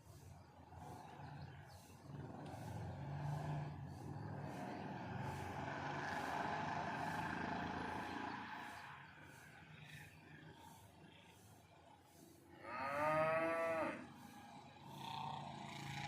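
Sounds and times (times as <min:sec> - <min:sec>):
road vehicle passing: 0:00.0 - 0:16.0.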